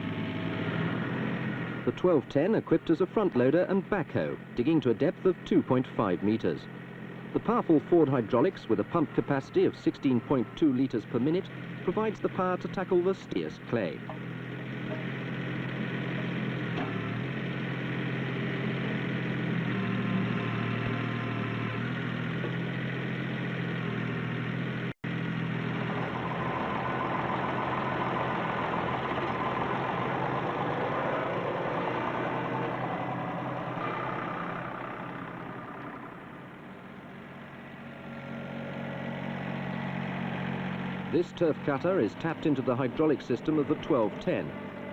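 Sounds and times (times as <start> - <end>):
tractor diesel engine running: 0.0 - 44.9
hydraulics working: 25.1 - 44.9.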